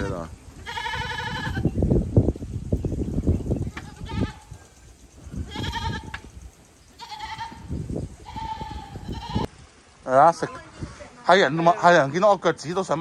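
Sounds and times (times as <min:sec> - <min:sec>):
livestock bleating: 0:00.6 - 0:01.8, 0:03.7 - 0:04.6, 0:05.4 - 0:06.2, 0:07.0 - 0:09.5.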